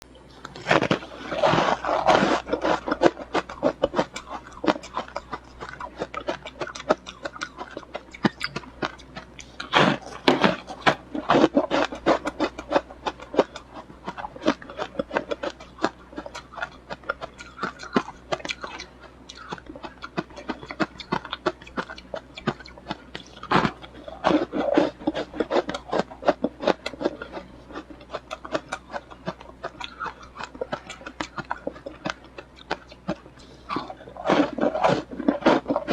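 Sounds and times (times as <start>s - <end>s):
ice being chewed: 0.2s - 35.9s.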